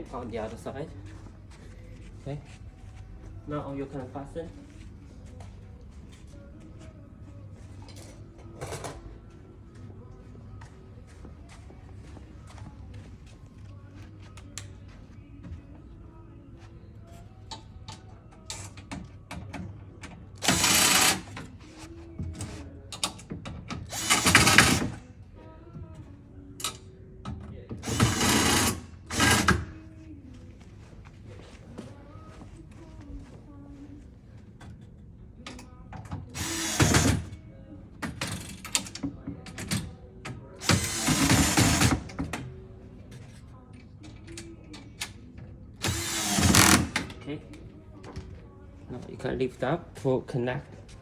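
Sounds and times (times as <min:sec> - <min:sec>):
power screwdriver driving screws: 0:20.4 - 0:21.3, 0:45.8 - 0:47.0.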